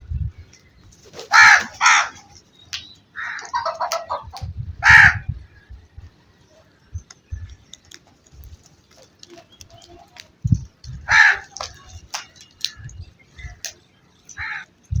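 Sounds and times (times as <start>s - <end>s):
crows cawing: 1.3s - 2.4s, 3.2s - 4.2s, 4.8s - 5.6s, 11.0s - 12.3s, 14.3s - 14.8s.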